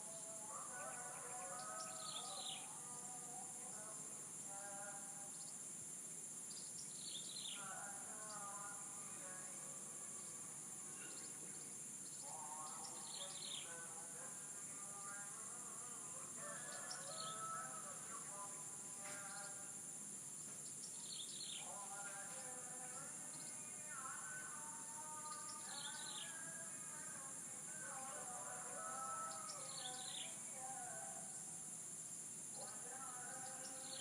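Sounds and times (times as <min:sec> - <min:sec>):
small birds chirping: 0:00.1 - 0:02.7, 0:06.4 - 0:15.8, 0:16.4 - 0:26.6, 0:27.7 - 0:31.0, 0:32.5 - 0:34.0
roosters crowing: 0:16.3 - 0:18.3.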